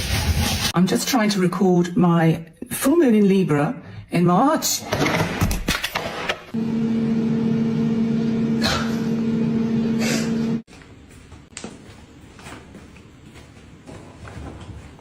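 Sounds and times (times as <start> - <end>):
electrical machine hum: 6.6 - 14.9.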